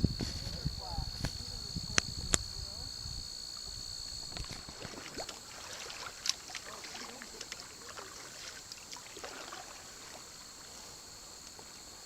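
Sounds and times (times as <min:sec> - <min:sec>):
insects chirring: 0:00.0 - 0:12.0
water dripping off paddle: 0:04.3 - 0:10.4
paddle splashes and knocks: 0:04.4 - 0:10.4.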